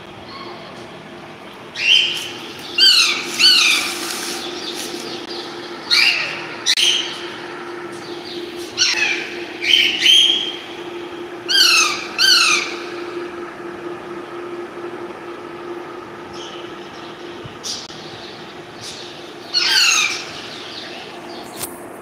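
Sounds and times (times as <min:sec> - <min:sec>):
steady low hum: 0:00.0 - 0:22.0
parrot squawking: 0:01.8 - 0:04.0, 0:05.9 - 0:07.1, 0:08.8 - 0:10.5, 0:11.5 - 0:12.8, 0:19.5 - 0:20.4.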